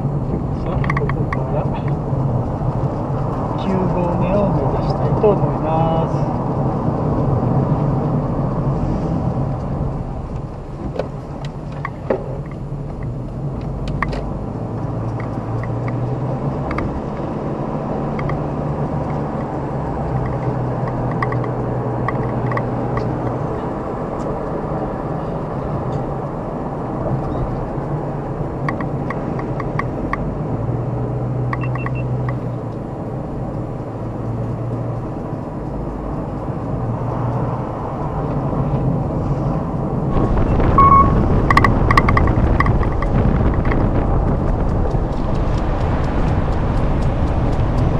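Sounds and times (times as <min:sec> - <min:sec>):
car engine hum: 0:00.0 - 0:47.9
tyre and road rumble: 0:00.0 - 0:47.9
small clicks and rattles: 0:19.0 - 0:23.3, 0:41.4 - 0:47.9.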